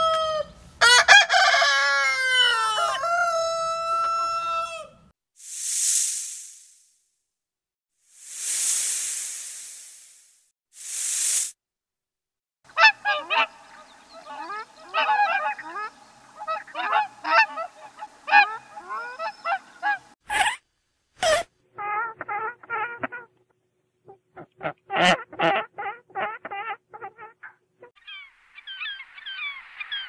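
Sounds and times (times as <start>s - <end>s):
snake hissing: 5.4s - 6.9s, 8.1s - 11.6s
waterfowl honking: 12.7s - 20.2s.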